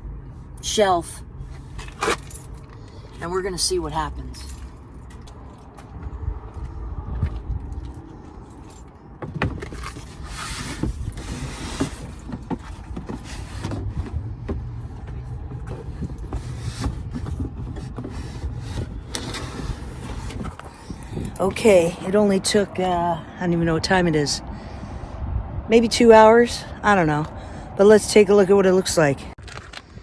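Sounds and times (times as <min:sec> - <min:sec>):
air conditioner knocking and scraping: 0:09.2 - 0:21.7.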